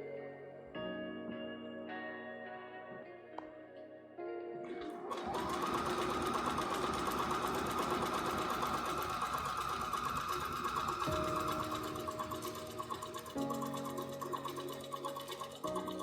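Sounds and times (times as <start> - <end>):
soft background music: 0.0 - 16.0
sewing machine running: 5.0 - 16.0.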